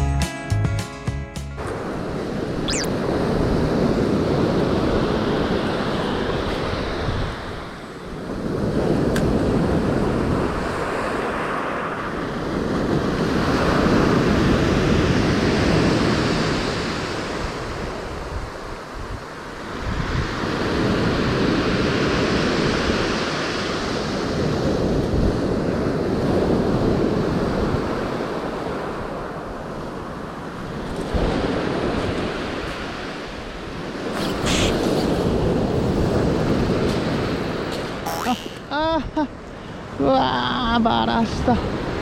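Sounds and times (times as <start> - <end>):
surf breaking on a beach: 1.7 - 38.1.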